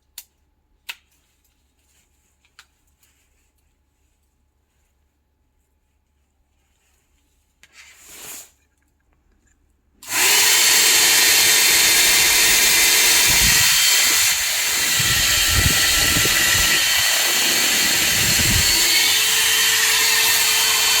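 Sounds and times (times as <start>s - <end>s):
hair dryer blowing: 10.0s - 21.0s
air gusting against microphone: 11.9s - 19.4s.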